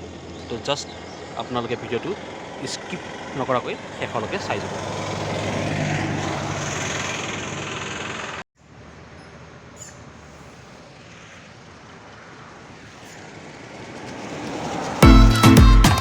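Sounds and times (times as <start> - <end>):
motorcycle engine idling: 0.0 - 5.5, 6.6 - 8.4.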